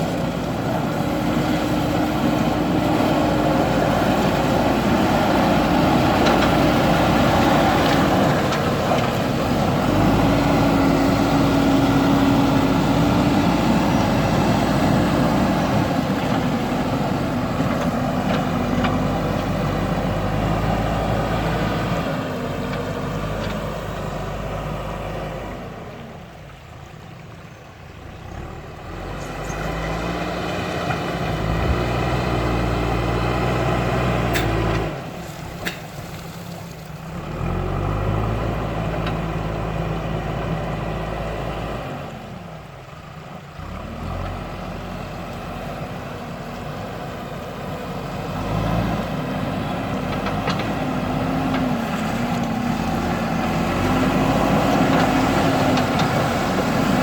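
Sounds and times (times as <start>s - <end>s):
diesel engine working: 0.0s - 57.0s.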